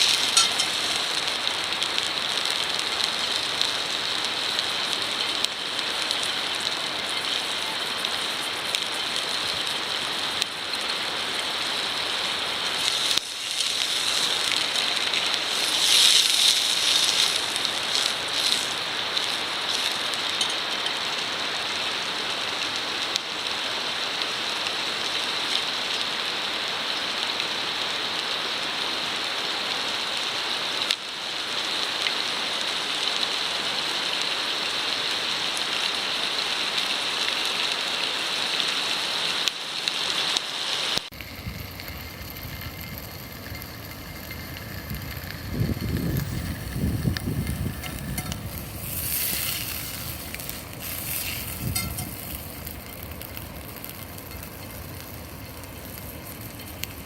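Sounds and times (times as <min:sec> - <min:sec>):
wood fire crackling: 0:00.0 - 0:23.6, 0:39.4 - 0:57.0.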